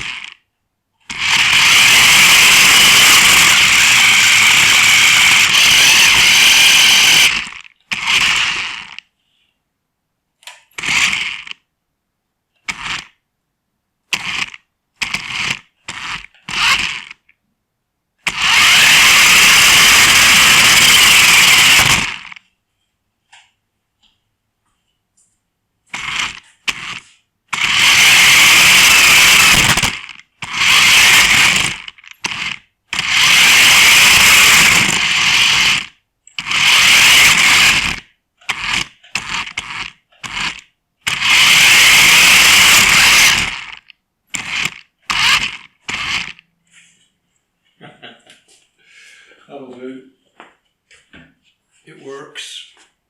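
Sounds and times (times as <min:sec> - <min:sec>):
toy car motor whirring: 0:00.0 - 0:00.4, 0:01.0 - 0:09.1, 0:10.4 - 0:11.6, 0:12.6 - 0:13.2, 0:14.1 - 0:17.3, 0:18.2 - 0:22.4, 0:25.9 - 0:46.5.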